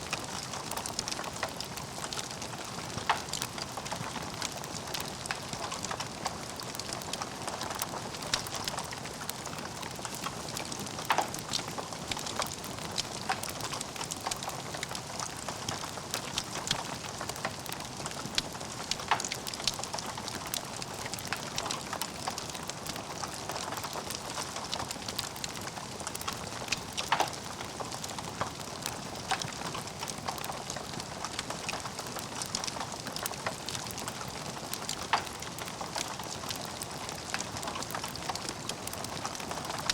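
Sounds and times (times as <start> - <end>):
log fire crackling: 0.0 - 39.9
fire pops: 9.7 - 14.5.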